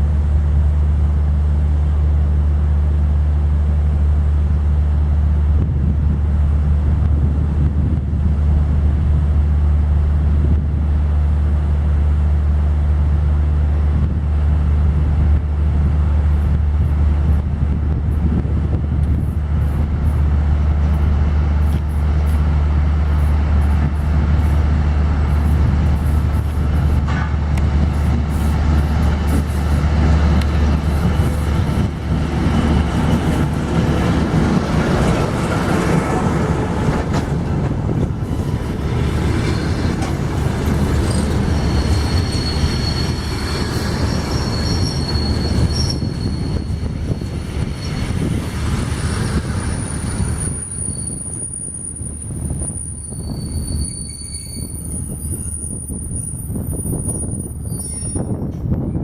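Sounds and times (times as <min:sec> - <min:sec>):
locomotive diesel engine droning: 0:00.0 - 0:58.8
rail and wheel rumble: 0:00.0 - 0:59.0
wheels squealing on rails: 0:38.1 - 0:59.0.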